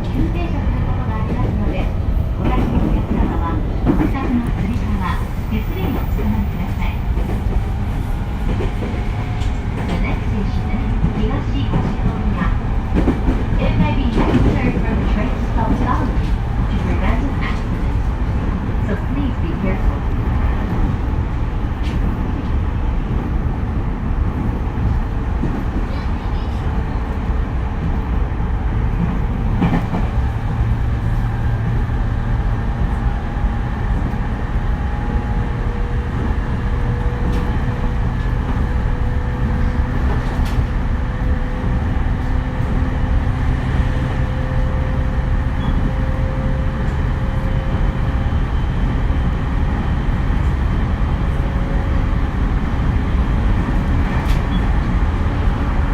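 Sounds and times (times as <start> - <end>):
train wheels rumbling on rail: 0.0 - 55.9
sharp clicks from rails: 36.1 - 42.9.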